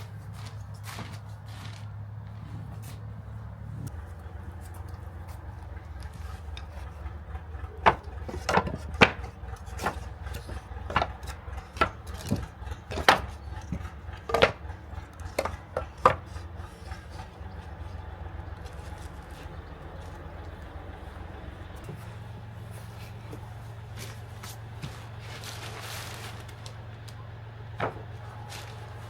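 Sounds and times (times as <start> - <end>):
low hum: 0.0 - 29.0
wooden panels knocking: 3.9 - 25.0, 27.7 - 29.0.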